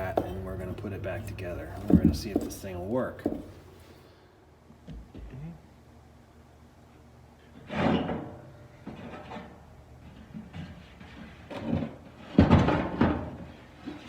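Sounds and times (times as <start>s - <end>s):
metal clunks and rattling: 0.0s - 3.8s.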